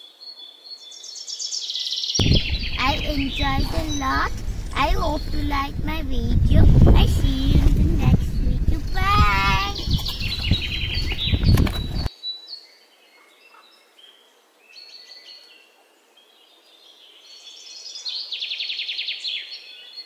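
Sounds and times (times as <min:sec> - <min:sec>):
small birds chirping: 0:00.0 - 0:20.0
rushing outdoor noise: 0:02.2 - 0:12.1.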